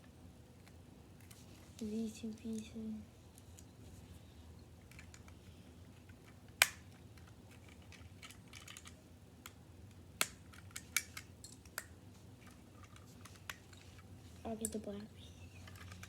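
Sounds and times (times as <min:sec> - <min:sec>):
plastic bricks clicking together: 0:06.5 - 0:09.0.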